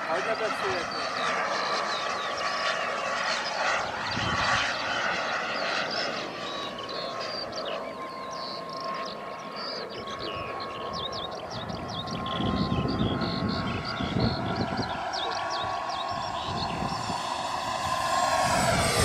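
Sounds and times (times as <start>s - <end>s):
model jet turbine whine: 0.0s - 19.0s
rushing jet noise: 12.2s - 19.0s.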